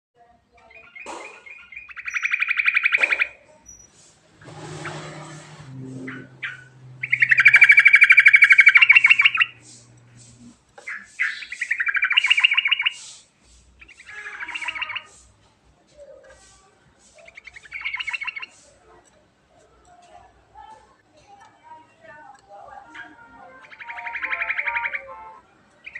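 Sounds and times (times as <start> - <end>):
bird singing trilled notes: 0.6 - 13.2, 13.8 - 15.2, 17.2 - 18.6, 22.4 - 25.9.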